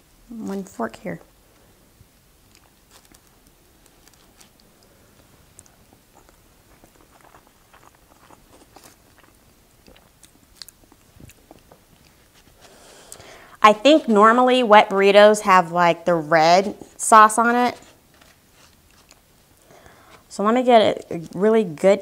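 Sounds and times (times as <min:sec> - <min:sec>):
faint chewing: 0:02.4 - 0:13.5, 0:17.8 - 0:20.3.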